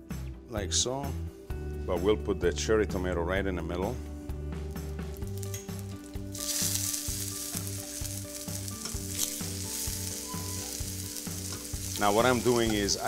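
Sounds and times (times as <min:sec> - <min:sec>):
pancakes sizzling in oil: 0:05.1 - 0:13.0.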